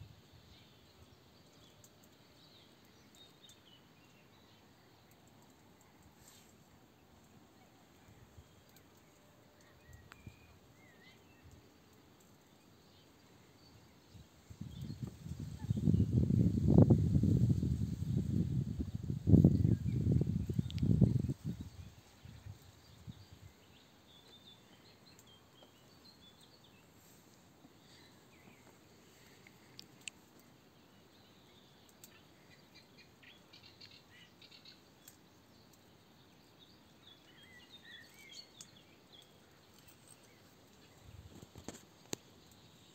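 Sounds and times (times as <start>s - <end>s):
faint bird chirps: 0.4s - 42.9s
small clicks: 20.6s - 20.9s, 28.6s - 30.5s, 38.6s - 42.7s.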